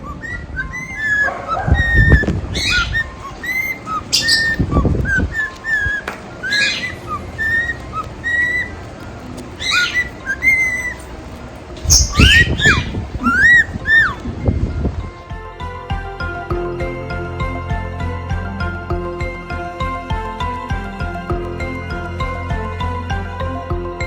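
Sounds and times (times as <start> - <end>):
cockatiels whistling and chirping: 0.0 - 11.2, 11.8 - 14.3.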